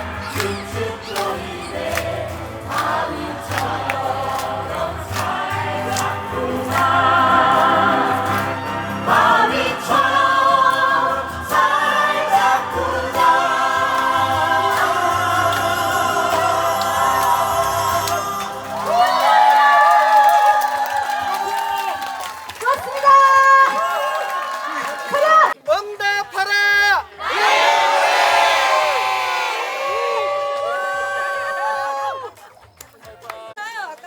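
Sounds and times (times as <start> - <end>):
group singing in chorus: 0.2 - 19.4.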